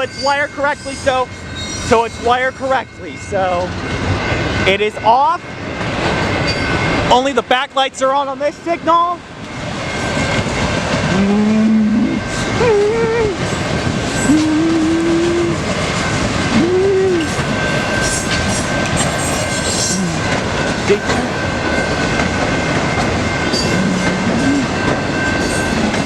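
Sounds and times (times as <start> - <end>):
train wheels rumbling over rails: 0.0 - 26.0.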